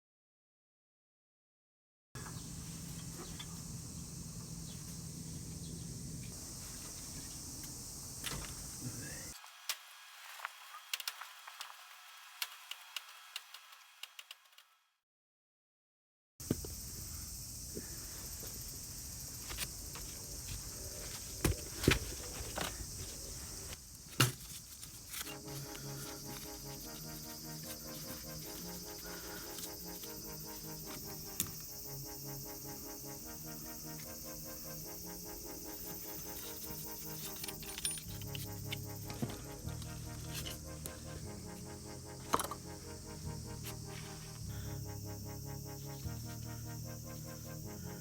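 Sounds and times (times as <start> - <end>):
high-pitched insect chirring: 24.9 - 48.0.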